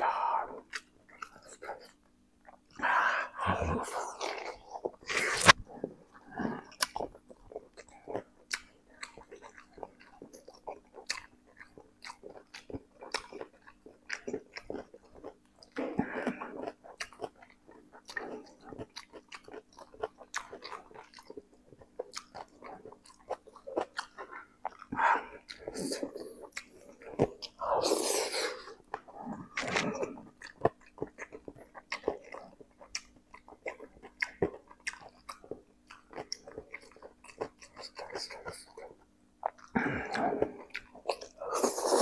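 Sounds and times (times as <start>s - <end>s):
wet chewing and smacking: 0.0s - 2.8s, 4.0s - 42.0s
breathy sounds: 2.8s - 6.8s, 39.7s - 40.7s.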